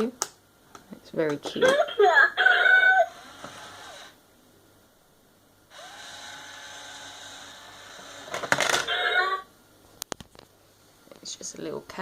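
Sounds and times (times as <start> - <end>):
small electric motor whirring: 3.0 - 4.2, 5.7 - 8.4.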